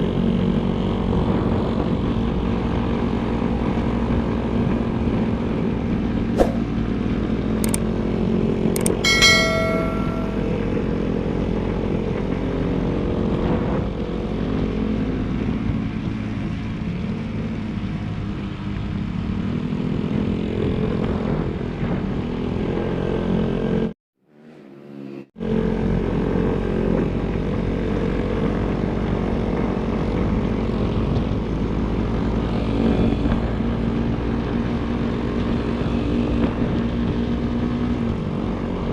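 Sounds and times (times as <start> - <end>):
sharp clicks: 7.6 - 7.8, 8.8 - 9.0
short ringing tone: 8.8 - 10.8.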